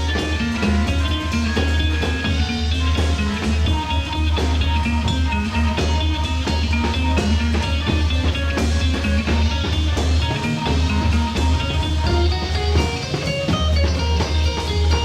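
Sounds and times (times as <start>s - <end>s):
guitar holding notes: 0.0s - 15.0s
heavy bass line: 0.0s - 15.0s
steady drum beat: 0.0s - 15.0s.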